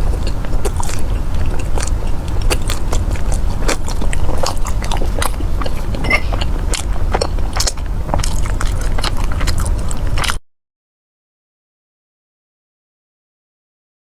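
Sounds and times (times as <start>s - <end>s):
crunchy biting and chewing: 0.0s - 10.4s.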